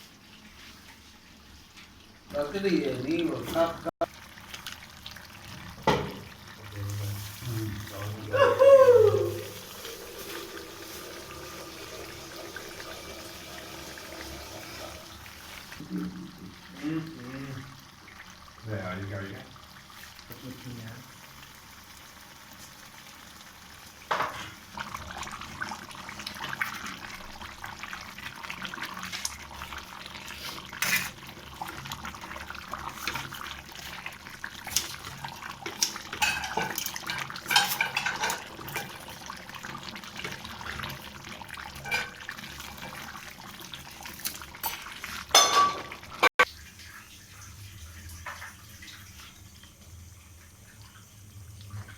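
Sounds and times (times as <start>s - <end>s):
utensils and dishes clinking: 35.7s - 39.0s, 41.8s - 42.3s, 44.2s - 46.3s.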